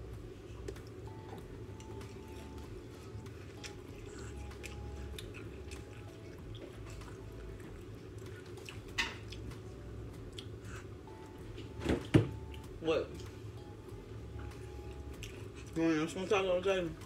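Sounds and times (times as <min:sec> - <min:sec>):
steady low hum: 0:00.0 - 0:17.0
person chewing wet mouth sounds: 0:01.8 - 0:11.3, 0:14.8 - 0:15.8.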